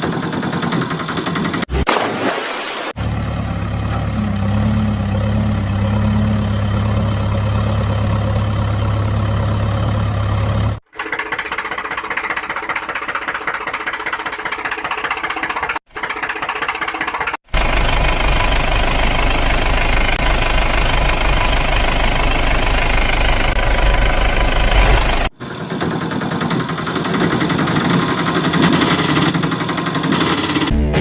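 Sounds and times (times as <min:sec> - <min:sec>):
engine rapid pulsing beat: 0:00.0 - 0:01.9, 0:11.0 - 0:31.0
engine low hum: 0:03.0 - 0:10.8, 0:17.5 - 0:31.0.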